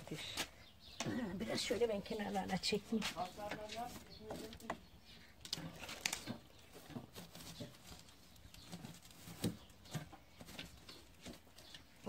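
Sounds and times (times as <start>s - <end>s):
embers raked clicks and knocks: 0.0s - 12.0s.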